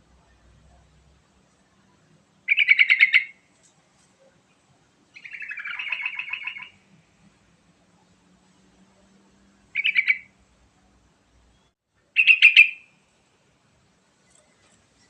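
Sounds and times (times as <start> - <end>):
bird singing bubbling phrases: 2.5 - 3.4, 5.2 - 6.8, 9.8 - 10.3, 11.6 - 12.9.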